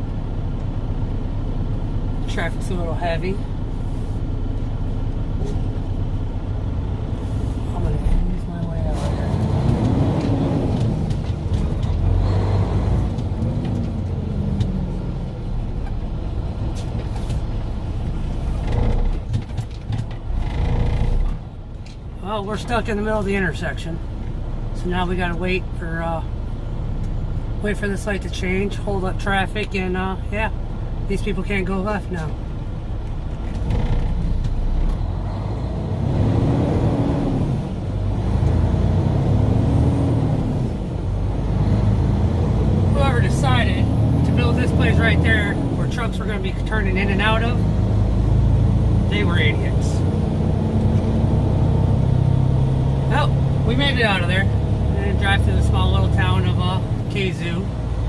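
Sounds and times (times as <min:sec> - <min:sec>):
diesel truck engine pulling away: 0:04.4 - 0:19.2, 0:32.3 - 0:58.0.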